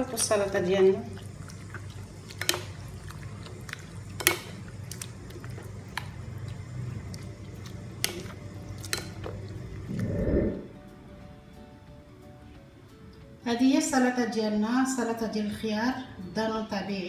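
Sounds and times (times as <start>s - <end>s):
wet squishing of stirring: 0.0s - 10.1s
low steady hum: 0.0s - 11.0s
utensil clinking against bowl: 3.7s - 4.6s, 7.6s - 9.5s.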